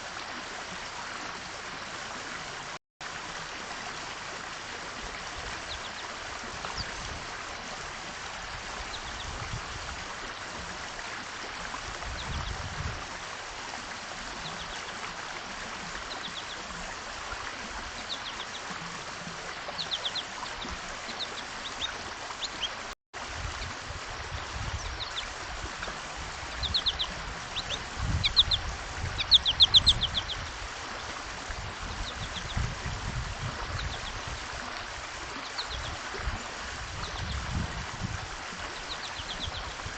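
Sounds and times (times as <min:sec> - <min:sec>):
small songbirds chirping: 0:05.6 - 0:07.0, 0:08.8 - 0:09.4, 0:14.3 - 0:15.1, 0:15.9 - 0:16.9, 0:17.9 - 0:18.8, 0:19.6 - 0:22.9, 0:24.4 - 0:31.1, 0:31.8 - 0:32.7, 0:33.6 - 0:34.5, 0:35.3 - 0:36.0, 0:37.0 - 0:37.6, 0:38.6 - 0:39.9.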